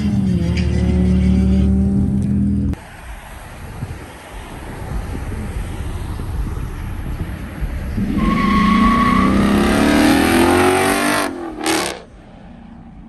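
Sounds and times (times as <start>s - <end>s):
car engine revving: 0.0s - 13.0s
tyre squeal: 8.0s - 9.6s.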